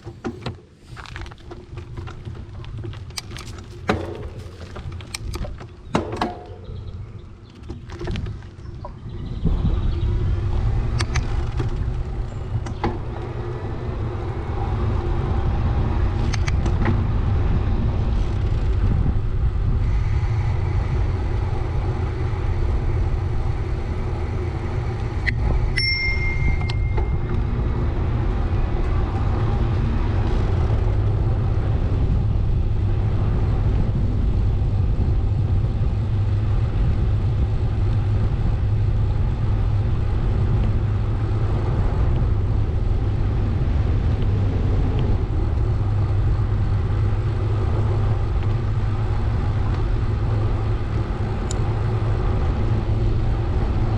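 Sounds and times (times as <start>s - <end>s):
wind and road rumble: 0.0s - 53.9s
brief ringing tone: 25.8s - 27.4s.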